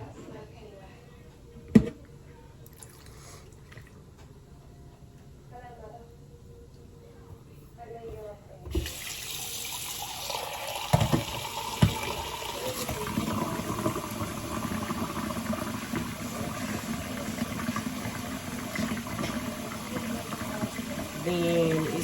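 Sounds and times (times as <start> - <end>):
liquid pouring into container: 2.7 - 4.0, 8.7 - 22.0.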